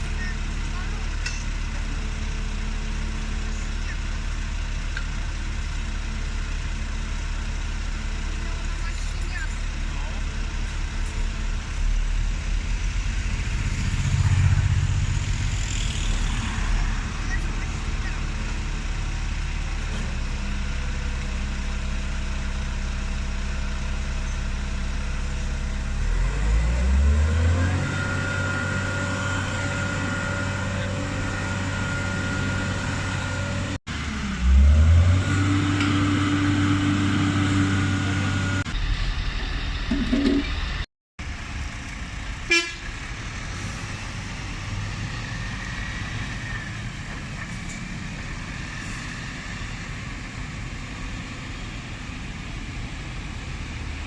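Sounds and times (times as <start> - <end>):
heavy truck engine revving: 0.0 - 40.9, 42.8 - 54.0
road noise: 0.0 - 54.0
steady horn tone: 42.5 - 42.9.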